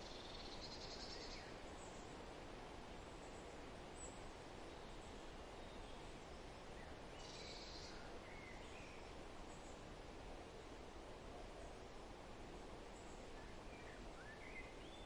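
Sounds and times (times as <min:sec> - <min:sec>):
faint bird chirps: 0:00.0 - 0:02.2, 0:03.2 - 0:09.8, 0:12.9 - 0:15.0
background hiss: 0:00.0 - 0:15.0.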